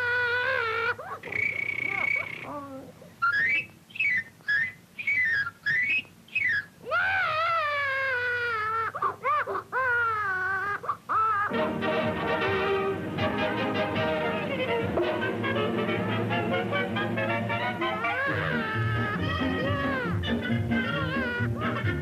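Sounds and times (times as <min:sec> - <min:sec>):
whistled chirps: 0:01.3 - 0:02.5, 0:03.2 - 0:06.8
cartoon character wailing: 0:06.8 - 0:11.6, 0:17.6 - 0:22.0.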